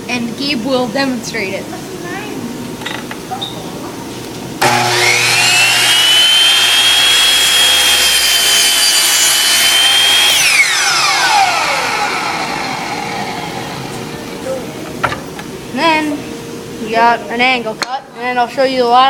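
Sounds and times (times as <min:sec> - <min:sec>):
miter saw motor whining: 0:04.6 - 0:14.2.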